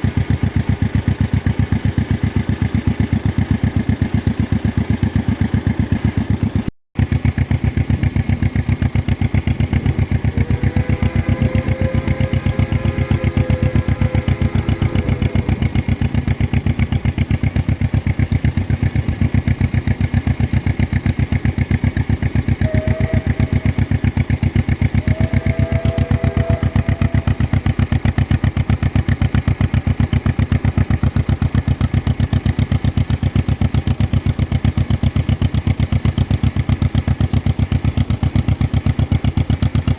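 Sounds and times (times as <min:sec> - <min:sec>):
two-cylinder engine running: 0:00.0 - 0:25.4.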